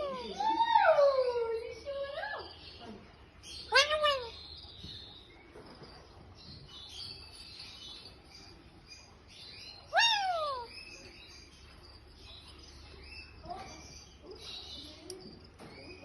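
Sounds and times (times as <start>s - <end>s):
parrot chirping: 3.4s - 5.3s, 8.2s - 15.2s.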